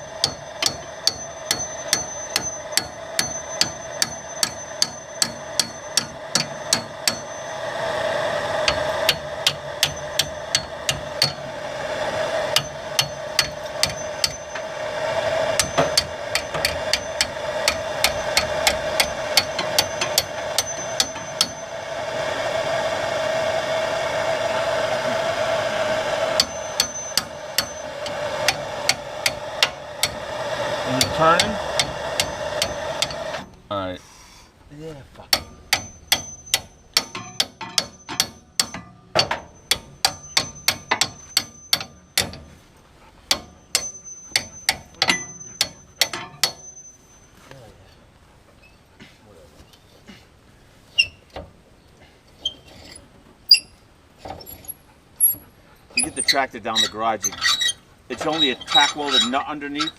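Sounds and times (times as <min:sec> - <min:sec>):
hammer ringing on metal: 0:00.0 - 0:07.6, 0:08.6 - 0:11.6, 0:12.5 - 0:14.8, 0:15.5 - 0:21.8, 0:26.3 - 0:30.2, 0:35.3 - 0:42.6, 0:43.3 - 0:47.0.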